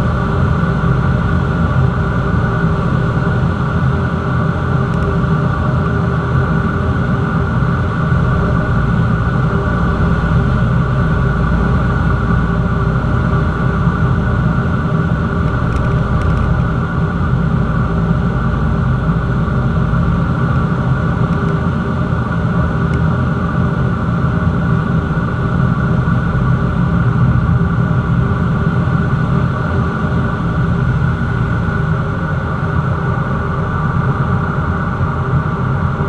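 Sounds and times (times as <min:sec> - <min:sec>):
propeller plane engine drone: 0:00.0 - 0:36.0.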